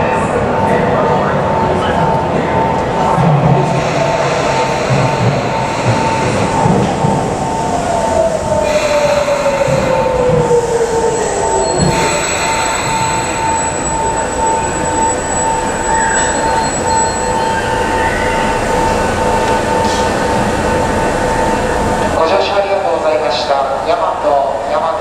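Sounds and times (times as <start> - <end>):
train rumble: 0.0 - 25.0
high brake squeal: 11.0 - 18.6.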